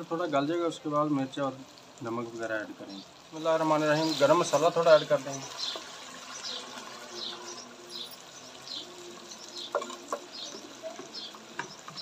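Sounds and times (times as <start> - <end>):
faint hiss: 0.0 - 12.0
bird chirping: 2.8 - 12.0.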